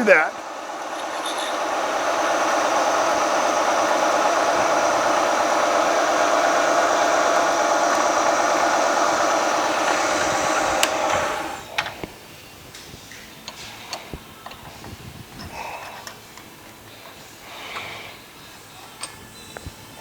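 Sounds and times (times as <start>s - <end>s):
milling machine drilling steel: 0.0s - 11.8s.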